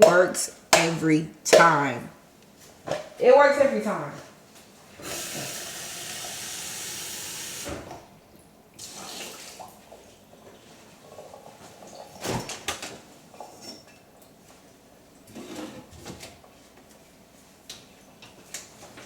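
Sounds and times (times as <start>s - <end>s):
water running from tap: 5.0s - 8.0s, 8.8s - 10.0s.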